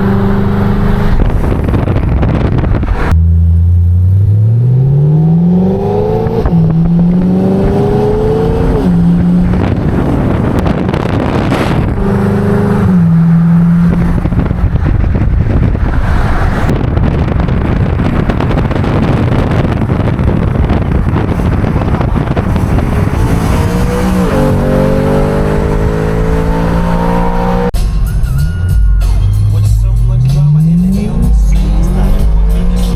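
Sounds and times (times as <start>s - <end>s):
car engine accelerating: 0.0s - 27.8s, 29.4s - 32.9s
loud rushing noise: 5.6s - 27.9s.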